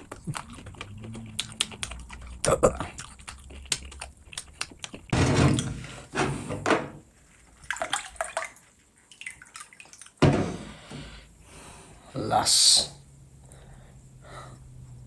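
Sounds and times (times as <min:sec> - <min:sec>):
wet mouth clicks: 0:00.0 - 0:05.1.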